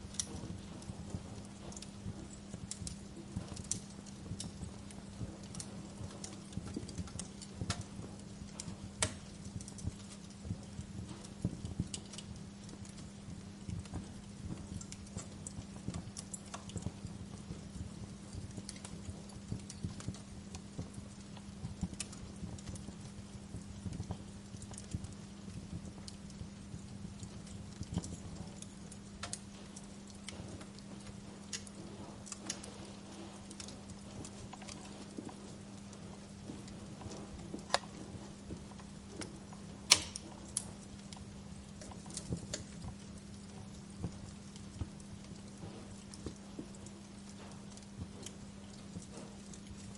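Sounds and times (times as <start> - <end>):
low steady hum: 0.0 - 49.9
wood fire crackling: 0.0 - 49.9.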